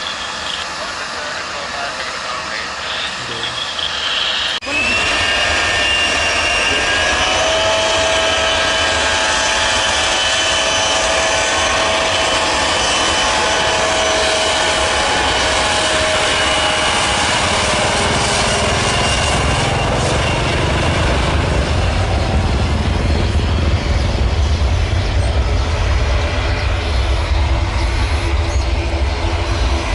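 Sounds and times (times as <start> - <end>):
jet engines whining: 0.0 - 29.9
low rumble: 17.3 - 29.9.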